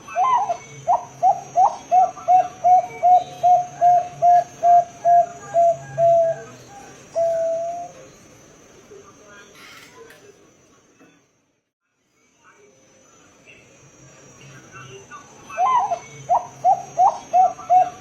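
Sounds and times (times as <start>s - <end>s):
dove cooing: 0.0s - 8.1s, 15.5s - 18.0s.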